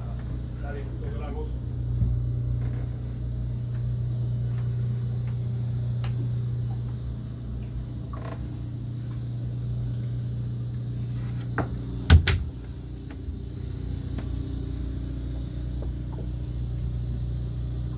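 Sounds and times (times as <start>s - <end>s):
sharp knocks: 12.1s - 12.6s.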